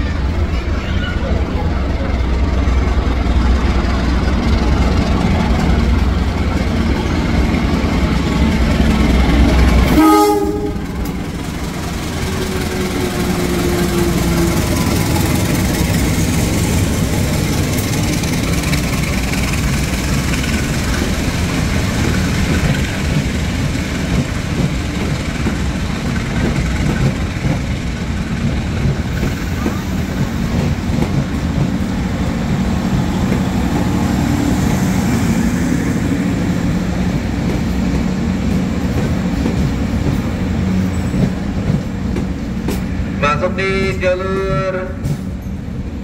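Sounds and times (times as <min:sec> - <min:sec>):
diesel locomotive engine rumble: 0:00.0 - 0:46.0
train wheels on rails: 0:00.0 - 0:46.0
train horn: 0:09.9 - 0:11.2.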